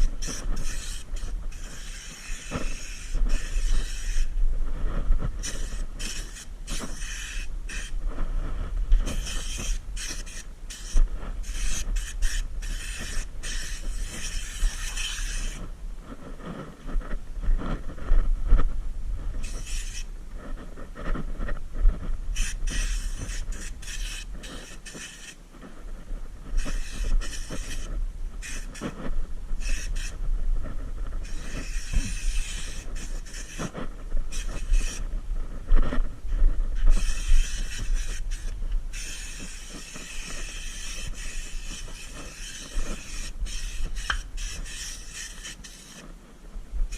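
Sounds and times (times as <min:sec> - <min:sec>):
spray gun hissing bursts: 0:00.0 - 0:04.3, 0:26.6 - 0:28.7, 0:31.3 - 0:33.6, 0:36.8 - 0:46.0.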